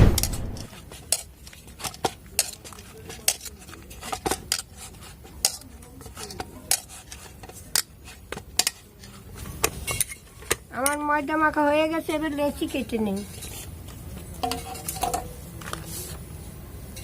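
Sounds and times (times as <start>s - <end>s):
dough kneading clicks and knocks: 0.0s - 11.9s.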